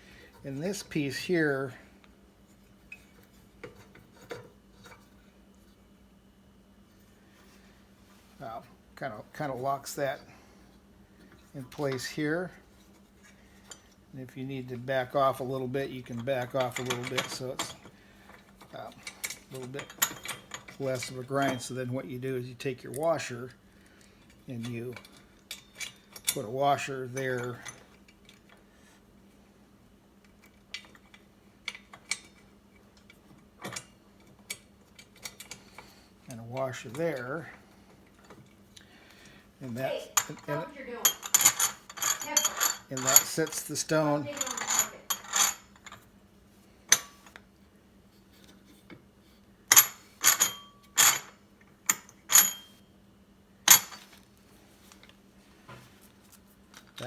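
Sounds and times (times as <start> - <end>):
metal parts clicking and clinking: 16.0 - 21.8, 24.2 - 28.6, 30.2 - 38.6, 40.1 - 46.1, 49.7 - 52.7, 53.7 - 54.3.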